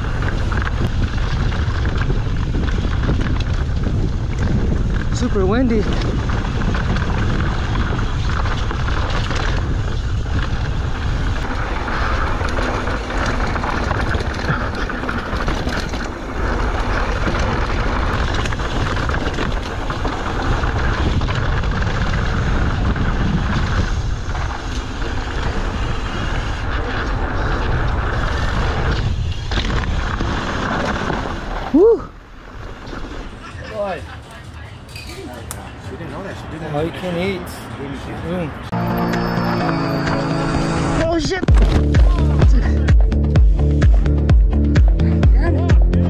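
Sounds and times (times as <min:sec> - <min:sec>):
wind rushing over microphone: 0:00.0 - 0:33.6
bike rattling: 0:00.0 - 0:46.0.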